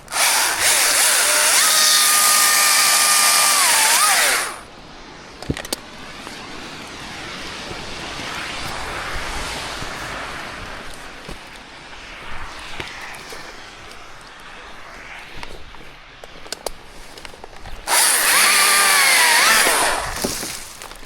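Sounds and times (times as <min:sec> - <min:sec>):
chainsaw at full throttle: 0:00.0 - 0:04.7, 0:17.9 - 0:20.8.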